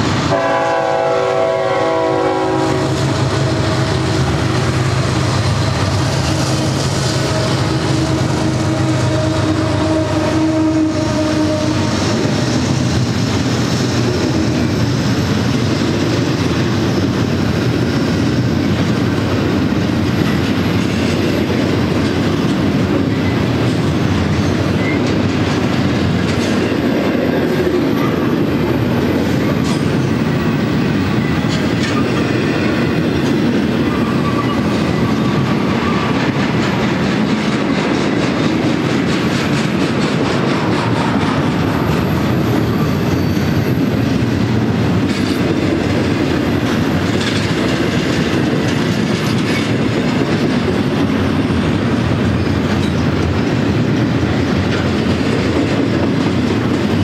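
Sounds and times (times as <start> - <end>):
train wheels rumbling on rails: 0.0 - 57.0
rhythmic clickety-clack: 11.7 - 57.0.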